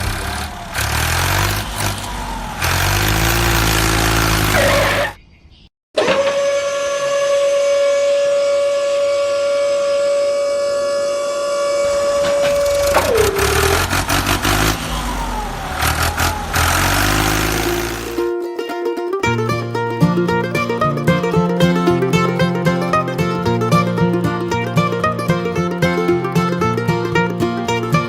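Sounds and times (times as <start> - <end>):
low uneven engine rumble: 0.0 - 5.2, 11.5 - 18.3
high motor whine: 6.0 - 18.3.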